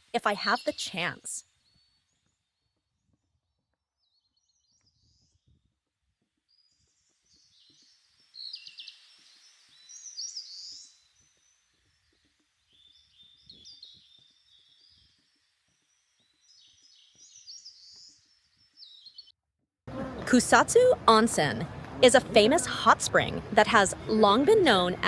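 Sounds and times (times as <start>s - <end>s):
birds chirping: 19.9s - 25.0s.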